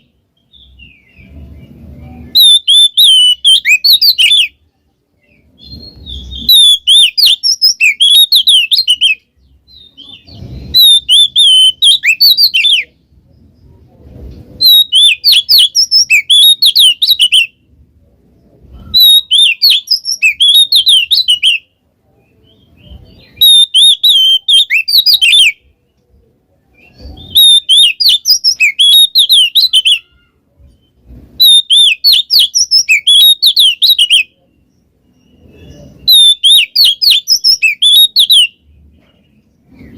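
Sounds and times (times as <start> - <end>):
bird singing whistles and chatter: 0.0 - 4.6, 5.2 - 13.0, 14.5 - 17.6, 18.4 - 25.8, 26.6 - 38.7.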